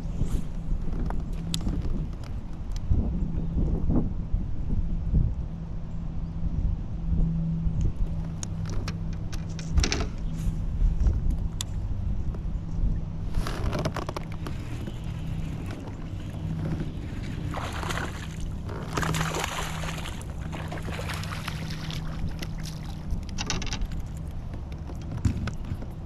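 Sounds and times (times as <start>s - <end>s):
steady low hum: 0.0s - 26.0s
water splashing against kayak: 13.3s - 26.0s.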